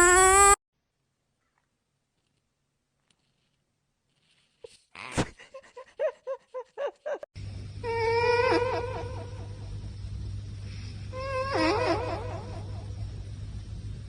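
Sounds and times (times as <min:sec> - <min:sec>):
steady low hum: 0:07.3 - 0:14.0.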